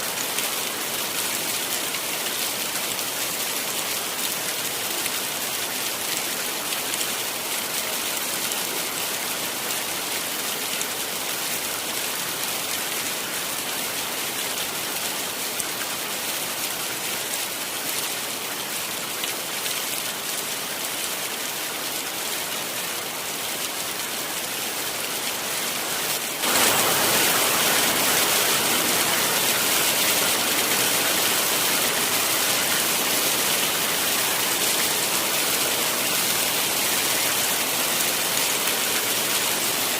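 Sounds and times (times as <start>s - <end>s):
heavy rain hissing: 25.6s - 39.9s.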